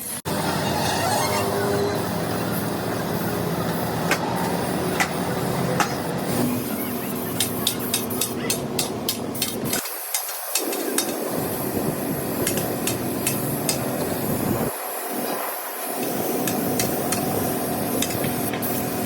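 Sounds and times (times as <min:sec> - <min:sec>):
workshop background din: 0:00.3 - 0:19.0
hammer tapping on metal: 0:07.4 - 0:11.2.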